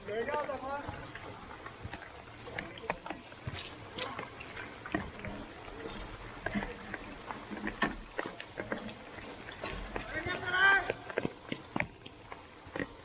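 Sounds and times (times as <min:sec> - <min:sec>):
rain pattering on turf: 0:09.7 - 0:12.2.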